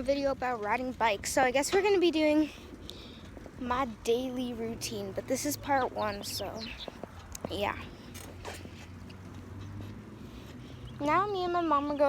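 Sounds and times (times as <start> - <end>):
bicycle creaks and clicks: 6.8 - 10.6.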